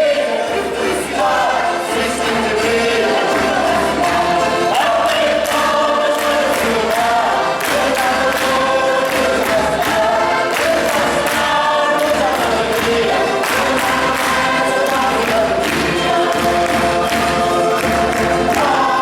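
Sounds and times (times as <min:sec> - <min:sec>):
group singing in chorus: 0:00.0 - 0:19.0
percussive strikes: 0:00.6 - 0:19.0.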